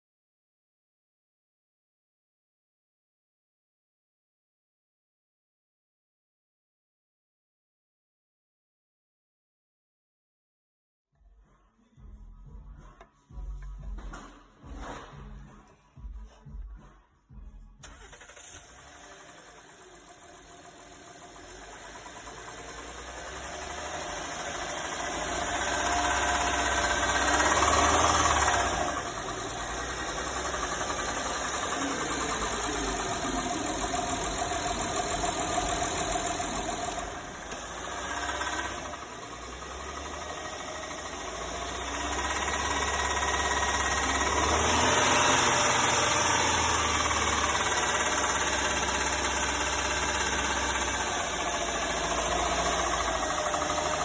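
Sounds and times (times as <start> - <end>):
engine revving up and down: 17.8 - 54.0
engine knock: 18.8 - 54.0.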